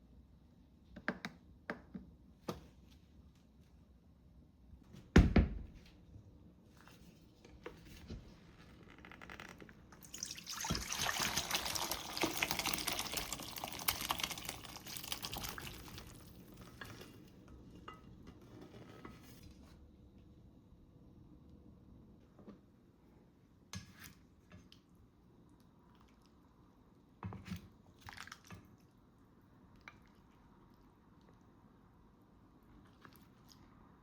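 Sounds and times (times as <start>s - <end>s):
water running: 10.0s - 17.3s.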